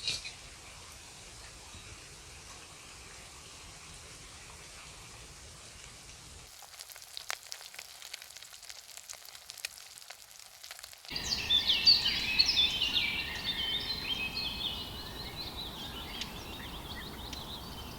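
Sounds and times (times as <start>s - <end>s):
food sizzling over campfire: 5.4s - 13.5s
fire pops: 6.5s - 11.2s
birds chirping: 11.1s - 17.9s.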